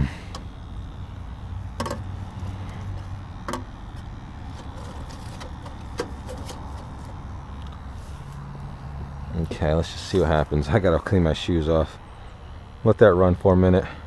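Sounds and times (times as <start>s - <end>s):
gas furnace humming: 0.0s - 14.0s
sharp clicks and knocks: 1.8s - 7.8s.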